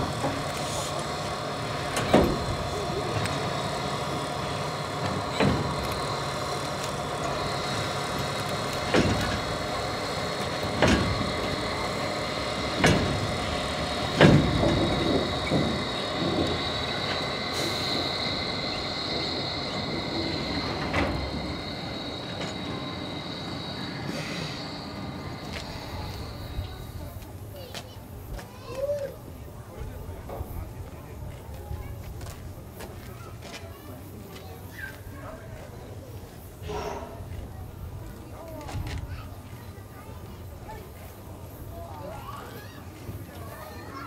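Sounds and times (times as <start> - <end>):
sharp knocks of train wheels: 0.0 - 28.6
train rumbling on rails: 0.0 - 44.0
faint high whine: 16.2 - 27.7.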